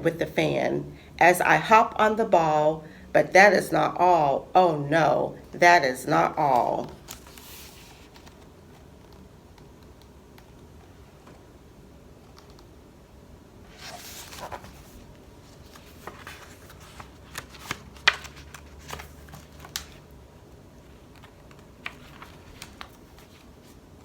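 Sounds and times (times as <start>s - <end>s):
page turning swish: 13.7s - 20.0s.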